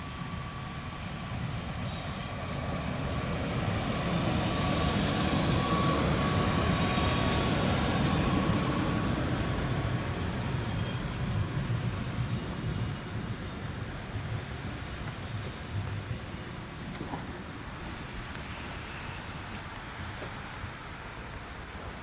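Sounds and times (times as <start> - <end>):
train wheels rumbling on rails: 0.2 - 22.0
thin steady whine: 16.3 - 22.0.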